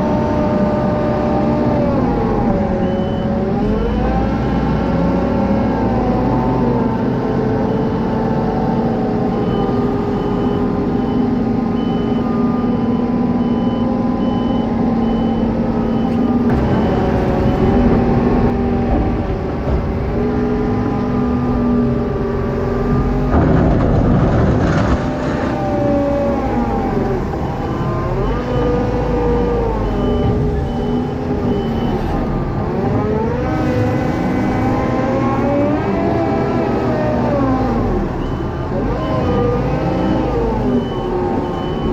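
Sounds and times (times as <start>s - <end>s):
heavy machinery engines: 0.0s - 41.9s
reversing alarm beeping: 1.4s - 5.0s, 9.3s - 19.0s, 26.3s - 32.5s, 37.6s - 41.9s.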